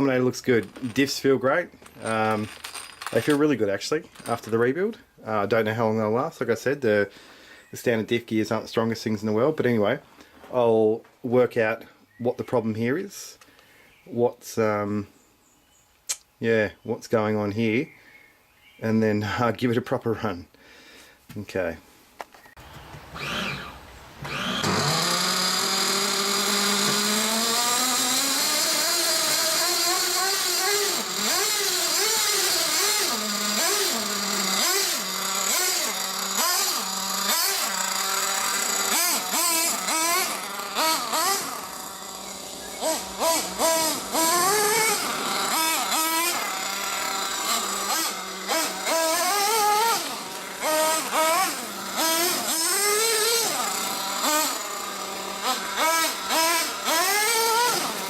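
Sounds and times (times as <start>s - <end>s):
rc car engine revving: 22.7s - 58.0s.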